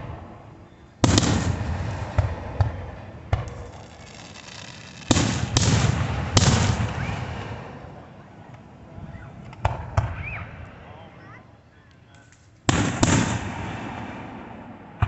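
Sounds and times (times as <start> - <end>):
loud firework bangs: 0.0 - 8.0, 9.5 - 10.7, 12.7 - 15.0
small firework pops: 2.1 - 7.2, 9.4 - 10.4.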